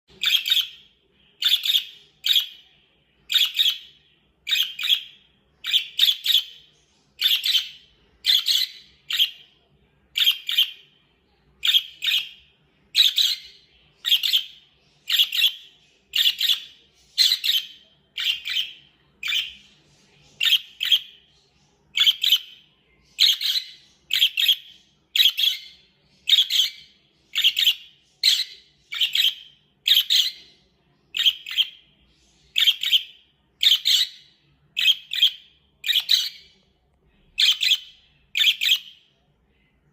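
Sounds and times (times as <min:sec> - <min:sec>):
budgerigar chirping: 0:00.2 - 0:02.6, 0:03.3 - 0:09.5, 0:10.2 - 0:10.8, 0:11.6 - 0:19.6, 0:22.0 - 0:30.5, 0:32.6 - 0:36.5, 0:37.4 - 0:39.0.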